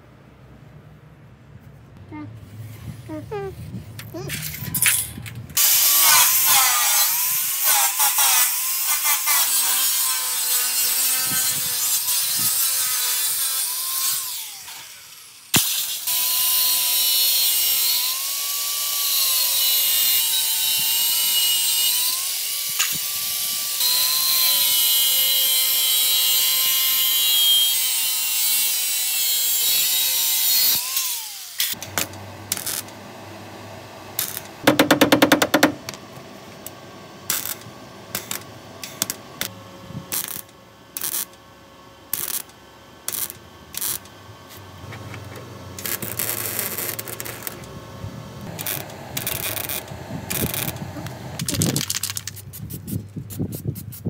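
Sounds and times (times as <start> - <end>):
power tool whining on metal: 5.6 - 39.5, 42.1 - 51.5
sharp knocks: 34.6 - 36.0.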